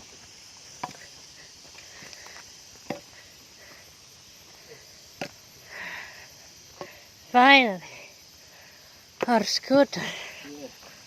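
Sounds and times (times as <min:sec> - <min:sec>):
footsteps on a path: 0:00.0 - 0:07.0
insects chirring: 0:00.0 - 0:11.0.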